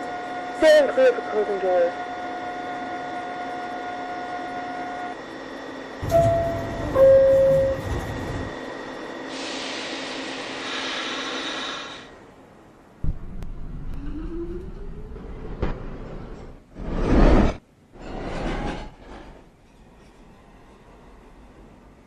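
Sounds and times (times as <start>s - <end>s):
two-note door chime: 6.0s - 7.9s
train doors thudding shut: 6.0s - 8.5s
compressed air hiss: 9.3s - 12.2s.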